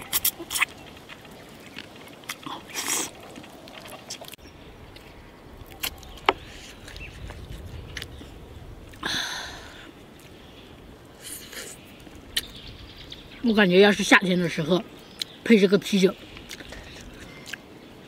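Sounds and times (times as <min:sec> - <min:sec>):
chewing meat and bone: 0:00.0 - 0:05.1.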